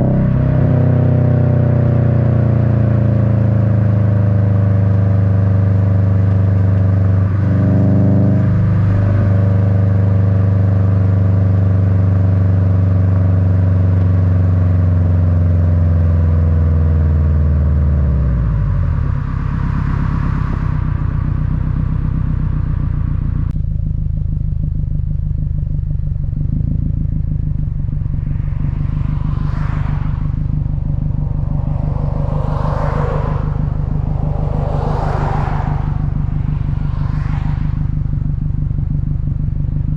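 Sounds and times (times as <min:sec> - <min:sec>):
car engine exhaust drone: 0:00.0 - 0:39.9
short rushing noises: 0:28.4 - 0:37.8.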